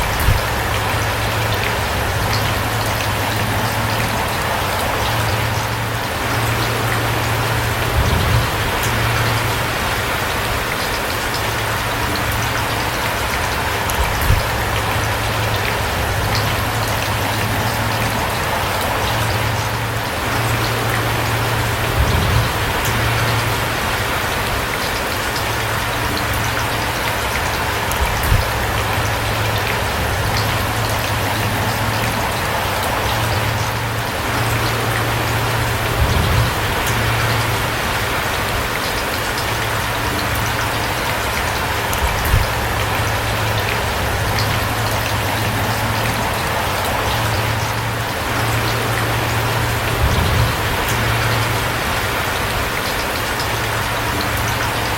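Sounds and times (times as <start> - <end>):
loud low thuds: 0.0 - 1.4
low rumble: 0.0 - 10.3, 11.7 - 24.4, 27.6 - 38.6
rain falling: 0.0 - 54.9.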